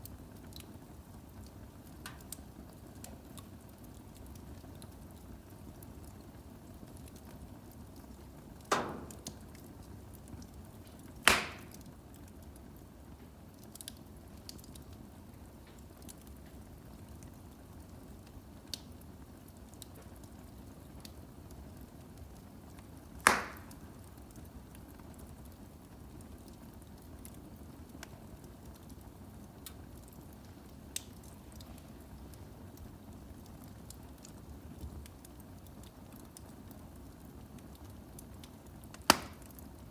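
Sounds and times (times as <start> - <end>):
fire rushing in fireplace: 7.0 - 11.9, 23.2 - 23.9
loud wood pops: 8.6 - 9.7, 11.2 - 11.9, 23.2 - 23.8, 39.0 - 39.6.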